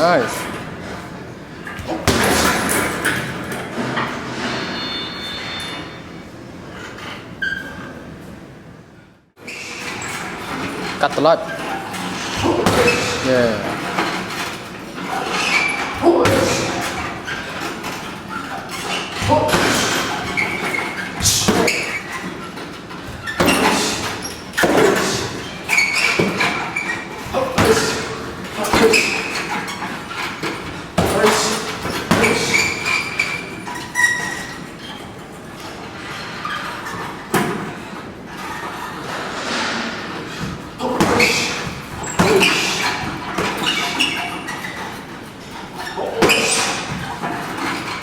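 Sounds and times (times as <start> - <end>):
strikes landing with thuds: 1.8 - 3.4, 19.1 - 22.0, 23.0 - 29.5, 30.4 - 32.9, 40.4 - 44.0.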